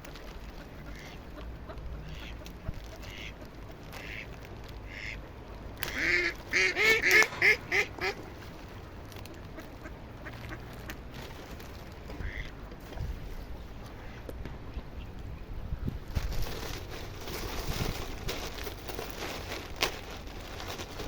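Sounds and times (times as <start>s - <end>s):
ducks quacking: 0.4s - 8.4s, 9.3s - 11.1s, 12.1s - 12.6s.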